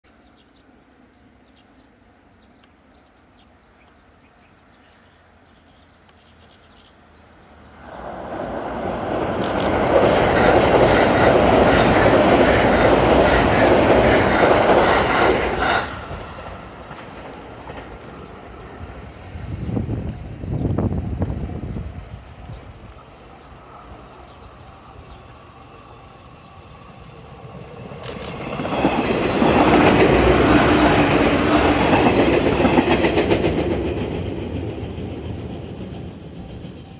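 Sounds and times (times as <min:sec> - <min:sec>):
electric train passing: 0:04.0 - 0:36.9.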